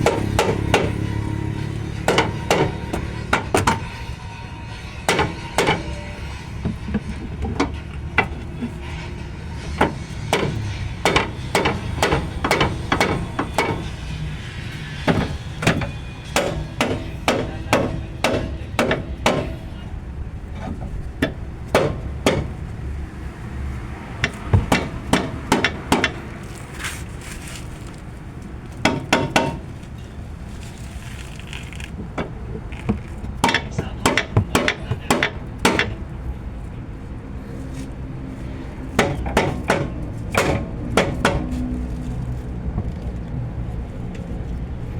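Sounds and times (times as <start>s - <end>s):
hammer striking metal: 0.0s - 19.8s, 21.2s - 22.5s, 24.2s - 26.2s, 28.8s - 29.6s, 33.4s - 36.0s, 39.0s - 41.5s.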